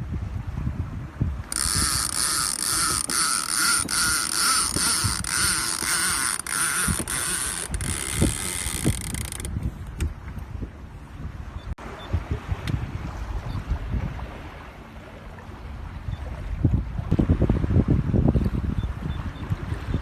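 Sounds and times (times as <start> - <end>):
wind and water rumble: 0.0 - 20.0
mechanical device whirring: 1.5 - 9.5.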